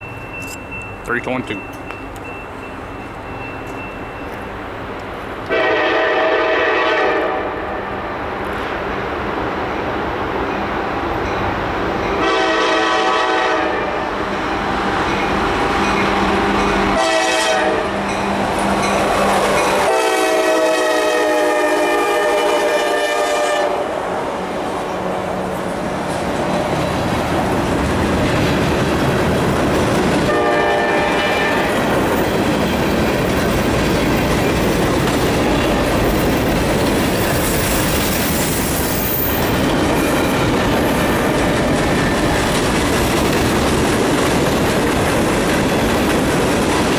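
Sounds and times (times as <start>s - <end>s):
train air horn blasts: 5.5s - 7.9s, 12.2s - 14.1s, 16.9s - 18.0s, 19.8s - 24.0s, 30.3s - 31.8s
wheels clacking over rail joints: 25.6s - 46.9s.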